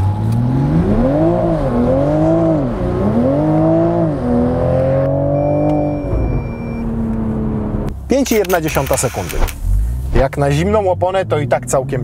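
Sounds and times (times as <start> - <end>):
car engine accelerating hard: 0.0 - 7.9.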